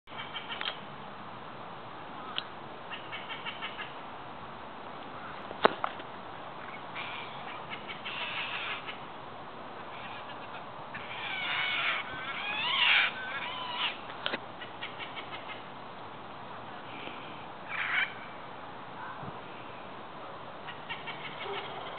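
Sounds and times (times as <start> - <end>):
parrots squawking: 7.0 - 9.0, 9.9 - 14.0.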